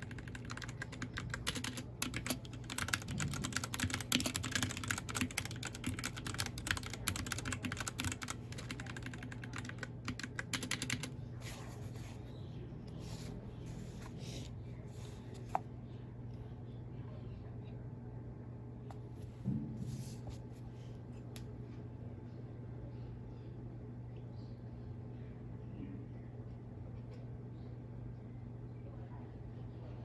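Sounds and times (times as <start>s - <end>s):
mechanical keyboard typing: 0.0s - 11.2s
steady low hum: 0.0s - 30.0s.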